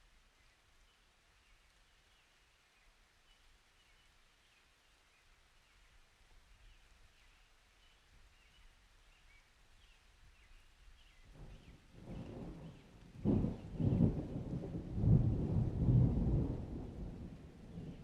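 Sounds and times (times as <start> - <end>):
low thunder rumble: 11.3 - 18.0.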